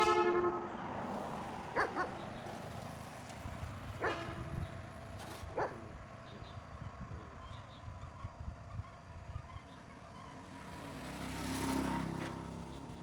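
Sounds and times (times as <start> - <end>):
dog barking: 1.7 - 2.4, 4.0 - 4.6, 5.5 - 5.9.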